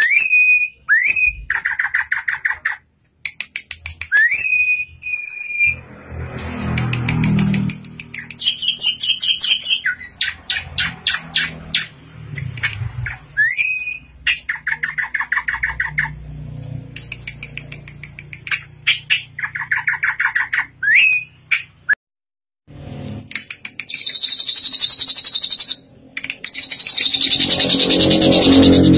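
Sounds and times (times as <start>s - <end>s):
bird singing clicking notes: 23.3s - 28.9s.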